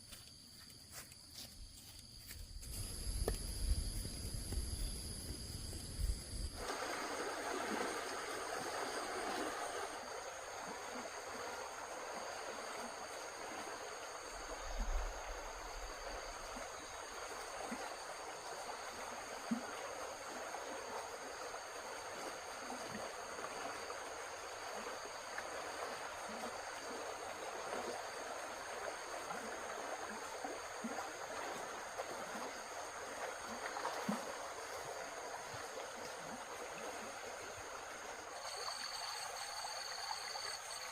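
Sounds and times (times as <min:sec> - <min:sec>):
high insect trill: 0:00.0 - 0:36.4, 0:37.0 - 0:40.9
running water: 0:02.7 - 0:40.9.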